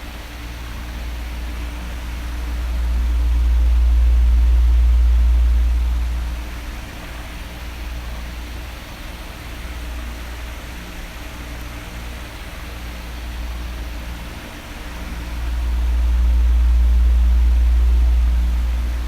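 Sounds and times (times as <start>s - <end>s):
electric fan hissing: 0.0s - 19.0s
deep low rumble: 1.2s - 8.2s, 14.8s - 19.0s.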